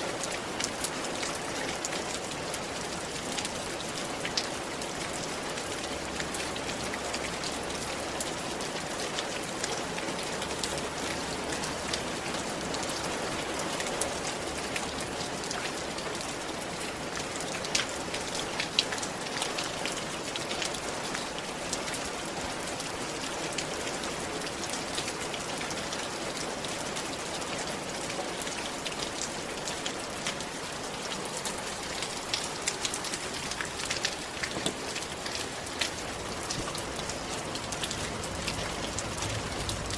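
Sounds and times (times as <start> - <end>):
rain on a roof: 0.0 - 39.9
raindrops tapping: 32.0 - 39.9.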